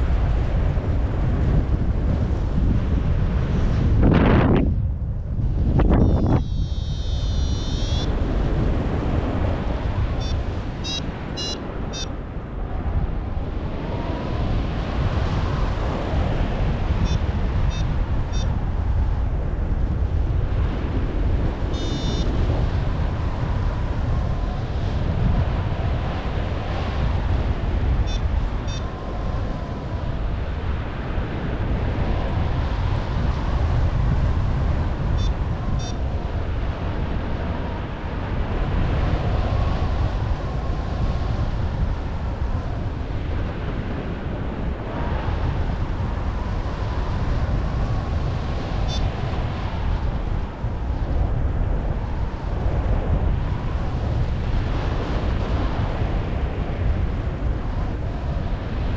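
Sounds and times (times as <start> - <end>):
wind buffeting microphone: 0.0 - 58.9
variometer high beeps: 6.0 - 8.1, 10.2 - 12.1, 17.0 - 18.5, 21.8 - 22.3, 28.1 - 28.9, 35.2 - 36.0.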